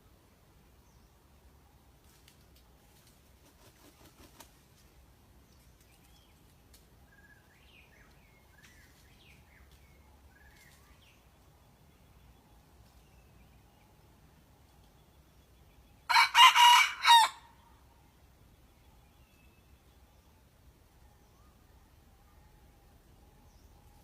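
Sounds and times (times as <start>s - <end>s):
low outdoor hum: 0.0s - 24.0s
faint bird chirps: 18.5s - 24.0s.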